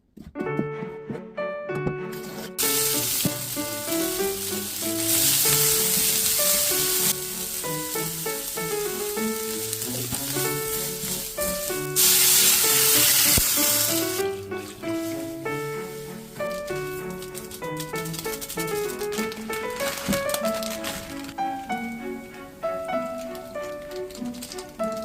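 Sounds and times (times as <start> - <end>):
light background music: 0.4 - 25.0
food sizzling in a hot pan: 2.6 - 14.2.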